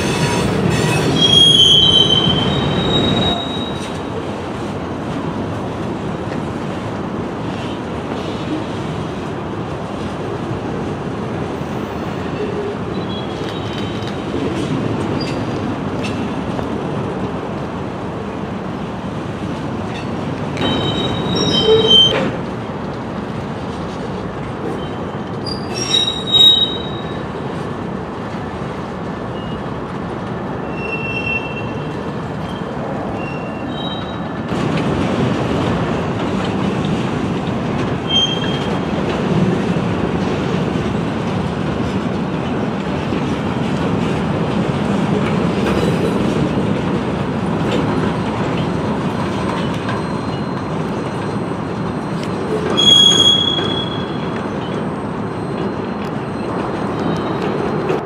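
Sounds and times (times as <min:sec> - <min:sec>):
high-pitched wheel squeals: 0:00.0 - 0:03.9, 0:20.6 - 0:22.2, 0:24.8 - 0:27.2, 0:38.1 - 0:38.8, 0:49.7 - 0:57.5
train wheels rumbling on rail: 0:00.0 - 0:58.0.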